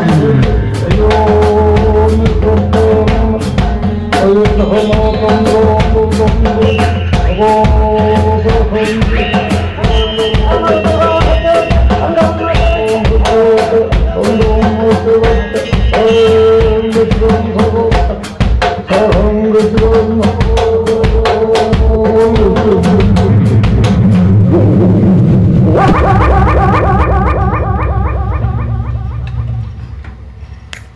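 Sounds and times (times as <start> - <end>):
drum kit beat: 0.0 - 29.8
live band music: 0.0 - 30.3.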